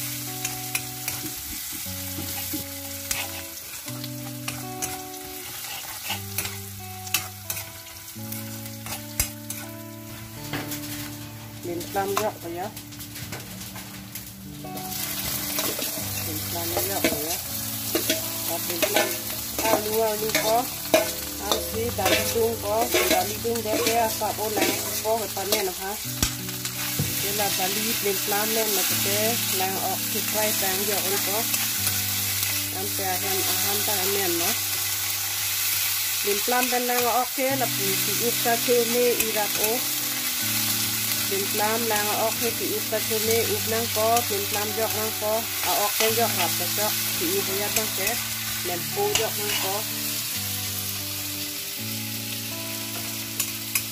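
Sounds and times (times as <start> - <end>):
fruit sizzling in oil: 0.0 - 53.9
metal ladle scraping pan: 0.7 - 7.8, 15.1 - 27.0.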